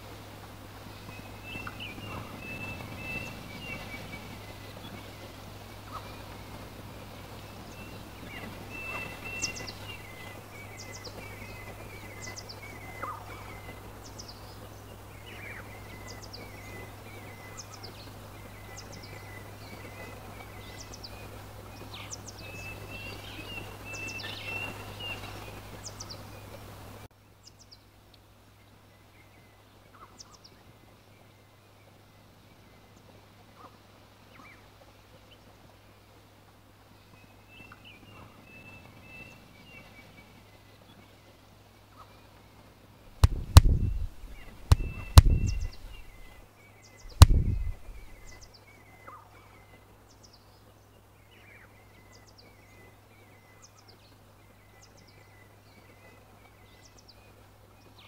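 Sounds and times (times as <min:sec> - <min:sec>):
wild birds chirping: 0:00.0 - 0:27.8, 0:36.9 - 0:58.0
steady low background hum: 0:43.0 - 0:48.5.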